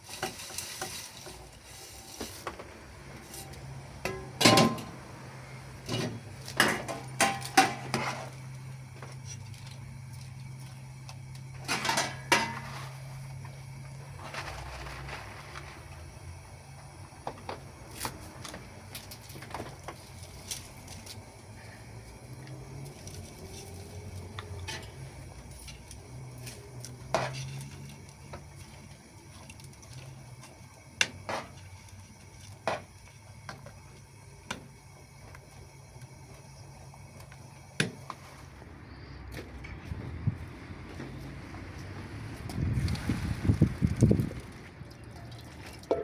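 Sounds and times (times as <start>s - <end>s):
pots and dishes clinking: 0.0s - 5.0s, 5.8s - 8.4s, 11.6s - 13.1s, 24.4s - 28.5s.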